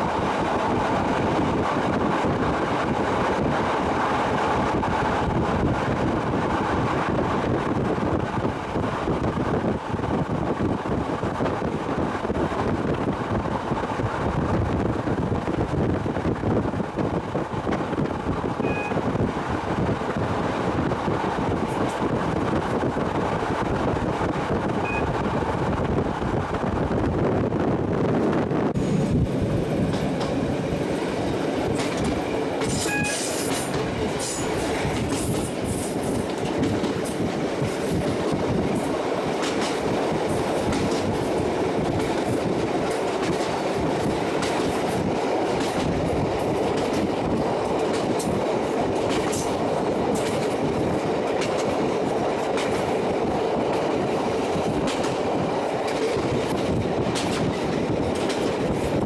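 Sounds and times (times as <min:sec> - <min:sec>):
train wheels rumbling on rail: 0:00.0 - 0:59.0
wheels clicking over rail joints: 0:29.5 - 0:59.0.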